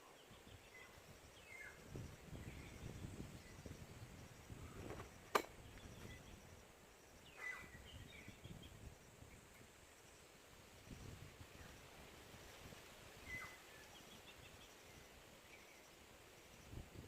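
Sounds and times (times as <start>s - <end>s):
bird chirp: 0.0s - 9.8s, 13.2s - 16.8s
sharp click: 4.9s - 5.5s.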